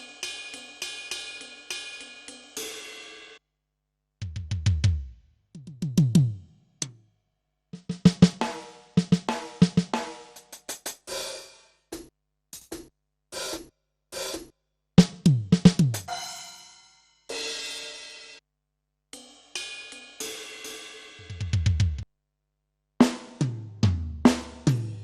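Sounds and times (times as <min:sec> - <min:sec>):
snare and cymbal strikes: 0:00.0 - 0:03.4, 0:07.8 - 0:18.4, 0:19.2 - 0:22.0, 0:23.0 - 0:25.0.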